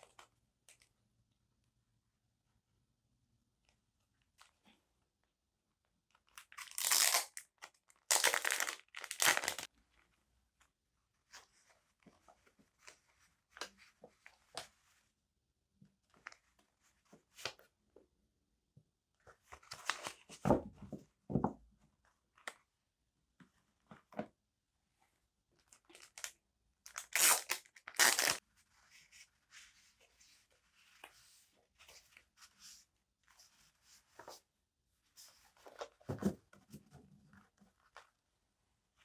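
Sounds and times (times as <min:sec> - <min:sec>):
paper rustling and crinkling: 0:08.1 - 0:09.7, 0:26.9 - 0:34.4
paper tearing: 0:27.0 - 0:28.4.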